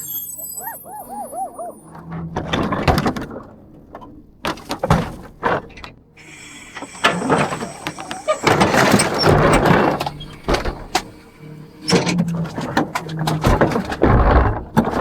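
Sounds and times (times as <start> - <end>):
short rising-and-falling chirps: 0.0 - 2.0.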